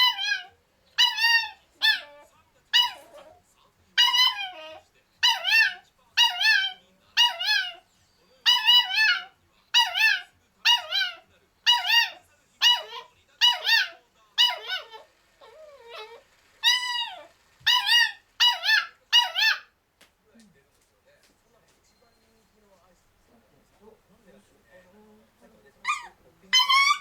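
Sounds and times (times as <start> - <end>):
puppy yipping and whining: 0.0 - 3.4, 4.0 - 7.8, 8.4 - 19.7, 25.8 - 27.0.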